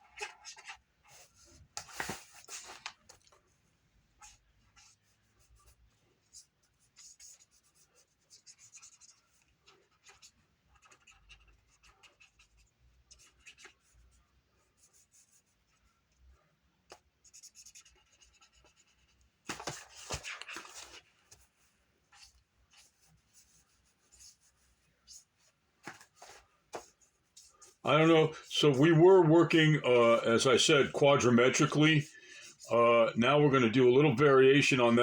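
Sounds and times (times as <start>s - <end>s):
rubbing on paper: 4.2s - 16.2s, 16.9s - 29.2s, 31.7s - 32.8s
pen scratching on card: 6.4s - 14.2s, 16.9s - 20.8s.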